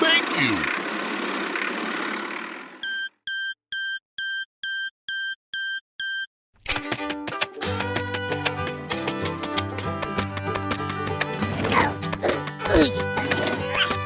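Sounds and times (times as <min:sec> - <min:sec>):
music: 0:06.7 - 0:14.0.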